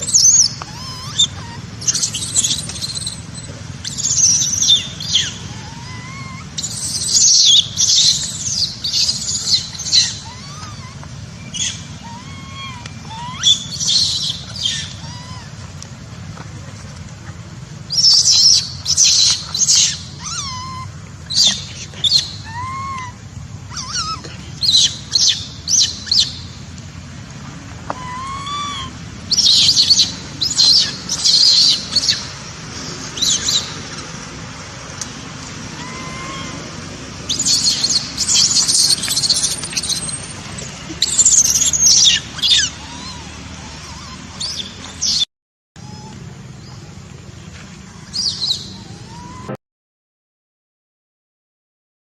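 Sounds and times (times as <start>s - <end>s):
young monkey screeching: 0.0s - 15.8s, 17.9s - 26.5s, 27.9s - 32.4s, 33.2s - 33.8s, 35.6s - 46.1s, 48.0s - 49.6s.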